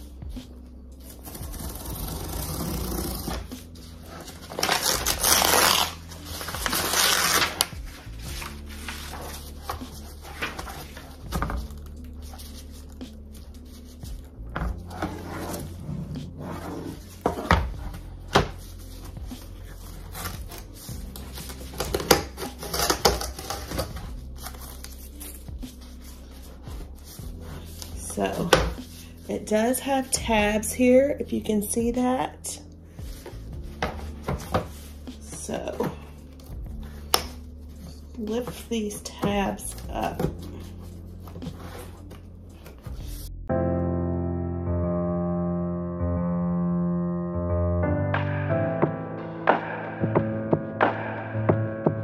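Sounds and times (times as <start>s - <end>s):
paper backing tearing: 1.0s - 13.5s.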